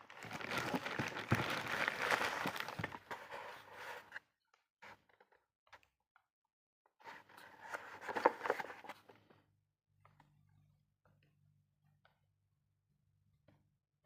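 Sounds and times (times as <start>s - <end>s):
packaging rustling and crinkling: 0.0s - 4.0s, 7.9s - 8.8s.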